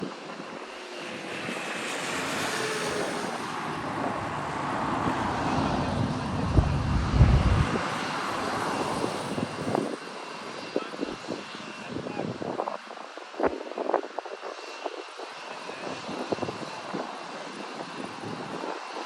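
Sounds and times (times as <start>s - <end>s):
jet engines roaring: 0.1s - 11.4s.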